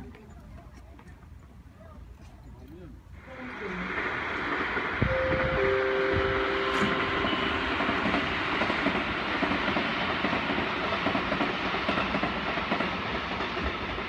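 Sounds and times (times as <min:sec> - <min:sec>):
train wheels rumbling and clattering: 0:03.5 - 0:14.0.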